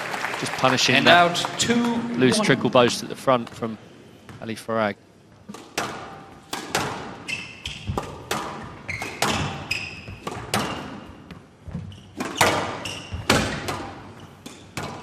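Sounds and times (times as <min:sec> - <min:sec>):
court shoes squeaking: 0:05.3 - 0:15.0.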